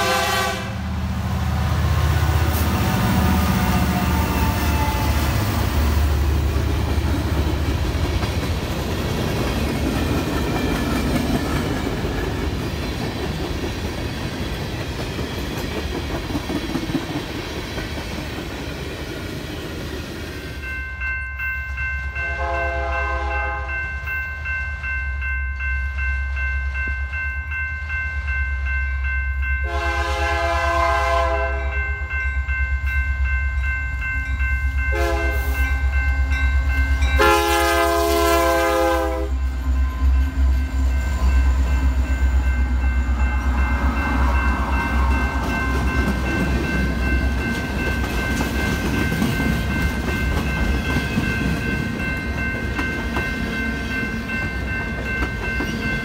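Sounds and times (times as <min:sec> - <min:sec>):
locomotive horn blasts: 0:00.0 - 0:01.0, 0:22.2 - 0:23.8, 0:29.6 - 0:31.8, 0:34.9 - 0:35.6, 0:37.2 - 0:39.4
low rumble of passing train: 0:00.0 - 0:56.0.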